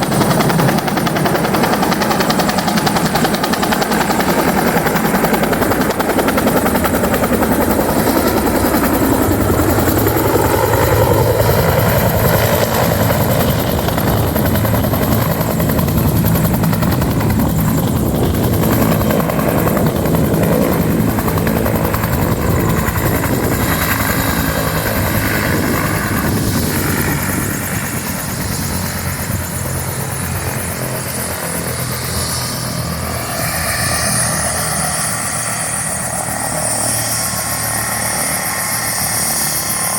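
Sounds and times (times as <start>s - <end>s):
helicopter rotor beating: 0.0s - 39.9s.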